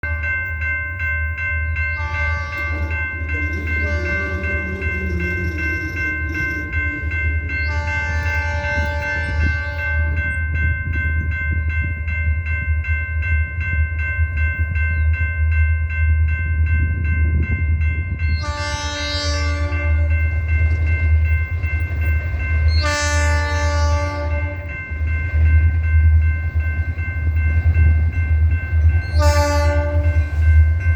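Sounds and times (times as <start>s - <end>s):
locomotive engine rumble: 0.0s - 12.9s
crossing bell ringing: 0.0s - 30.9s
locomotive air horn blasts: 1.9s - 6.8s, 7.6s - 10.2s, 18.4s - 20.2s, 22.7s - 24.7s, 29.1s - 30.2s.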